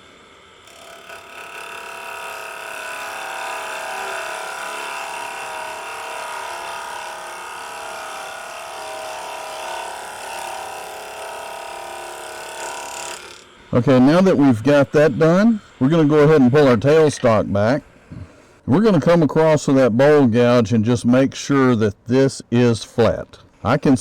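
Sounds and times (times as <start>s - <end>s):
lathe motor whine: 0.0s - 18.6s.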